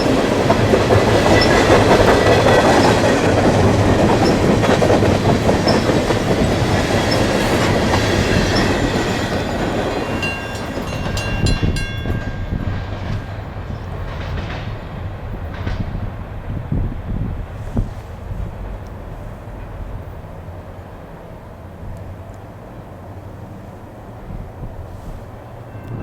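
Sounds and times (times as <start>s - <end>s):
train wheels clattering over rails: 0.0s - 20.8s.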